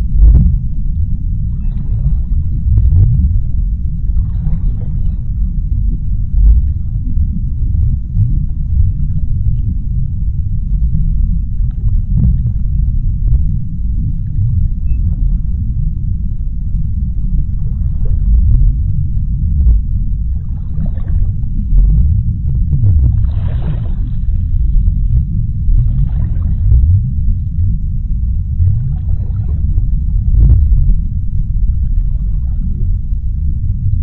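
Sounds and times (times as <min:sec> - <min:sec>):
deep underwater rumble: 0:00.0 - 0:34.0
faint ticks: 0:05.0 - 0:20.4, 0:24.2 - 0:34.0.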